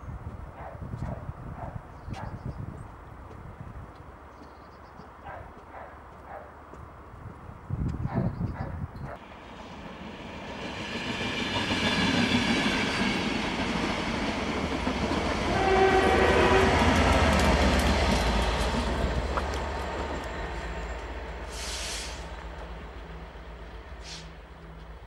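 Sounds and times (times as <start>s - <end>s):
diesel locomotive passing: 9.2s - 25.0s
train horn: 15.3s - 17.6s.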